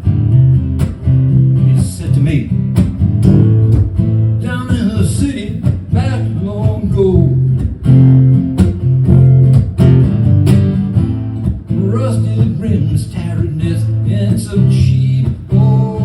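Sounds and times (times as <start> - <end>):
acoustic guitar strumming: 0.0 - 16.0
person singing: 11.7 - 16.0.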